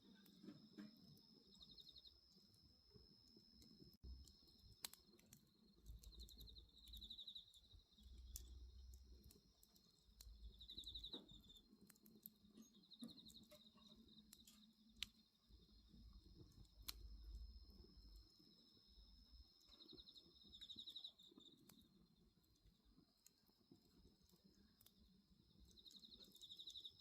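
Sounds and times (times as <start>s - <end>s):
bonfire crackling and popping: 0.0s - 27.0s
crickets trilling: 0.0s - 27.0s.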